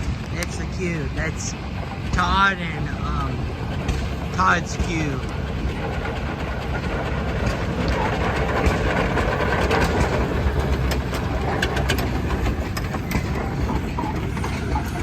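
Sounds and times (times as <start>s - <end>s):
sharp clicks and clanks: 0.0s - 15.0s
steam engine rumbling: 0.0s - 15.0s.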